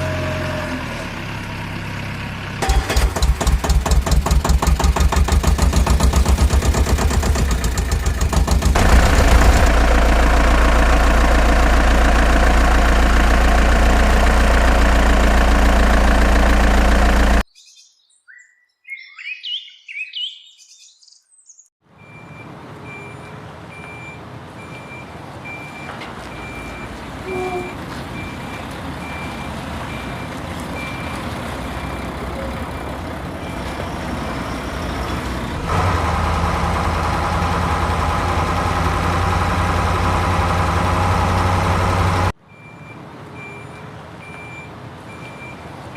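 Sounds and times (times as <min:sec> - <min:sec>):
diesel engine running loudly: 0:00.0 - 0:17.4, 0:30.8 - 0:42.4
bird chirps: 0:17.4 - 0:21.7
truck reversing alarm beeps: 0:22.0 - 0:35.1, 0:40.1 - 0:45.7.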